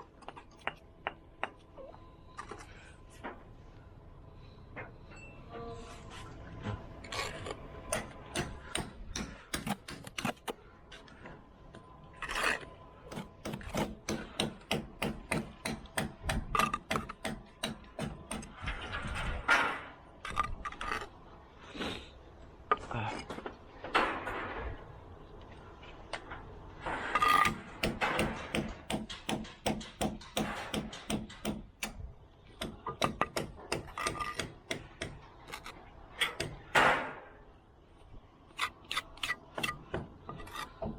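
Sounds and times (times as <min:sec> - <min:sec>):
tools scraping brick and mortar: 0:06.1 - 0:11.2, 0:12.1 - 0:21.2, 0:26.8 - 0:32.0, 0:32.6 - 0:37.2, 0:38.5 - 0:40.9
tools tapping on brick: 0:07.9 - 0:10.5, 0:27.2 - 0:32.0, 0:32.6 - 0:37.0.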